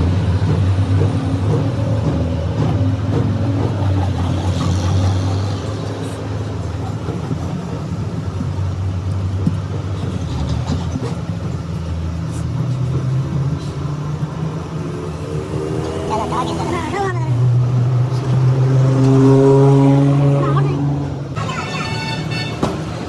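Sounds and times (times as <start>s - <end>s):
engine humming steadily: 0.0s - 23.0s.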